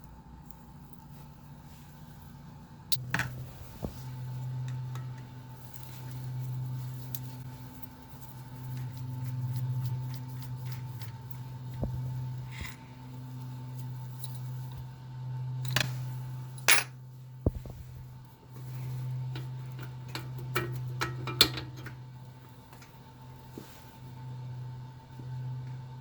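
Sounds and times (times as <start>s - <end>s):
steady low hum: 0.0s - 26.0s
metal parts clicking and tapping: 19.8s - 21.9s.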